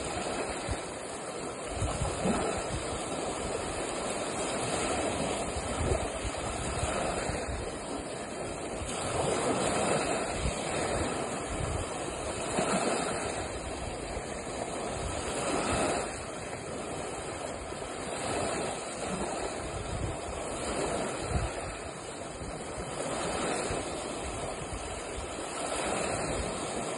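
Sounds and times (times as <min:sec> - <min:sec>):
lake waves washing in: 0:00.0 - 0:26.9
wind buffeting microphone: 0:00.0 - 0:26.9.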